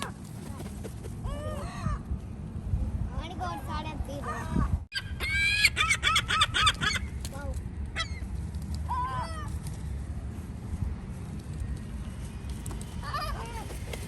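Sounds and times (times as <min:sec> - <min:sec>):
seagulls calling: 0:04.2 - 0:07.2, 0:13.0 - 0:14.0.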